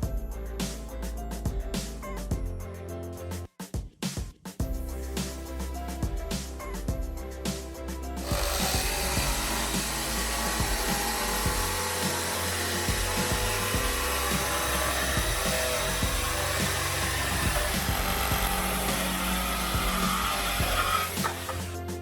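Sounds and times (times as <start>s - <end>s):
background music: 0.0s - 22.0s
power tool motor running: 8.2s - 21.8s.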